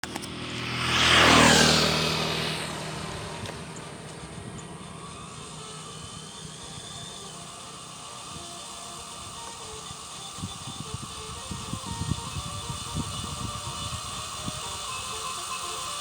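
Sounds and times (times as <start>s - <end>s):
vehicle passing close by: 0.0s - 6.8s.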